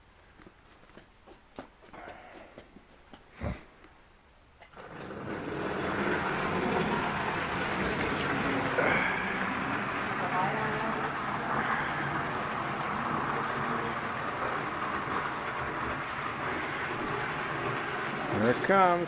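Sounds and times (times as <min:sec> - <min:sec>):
toy train running on track: 0:04.7 - 0:19.0.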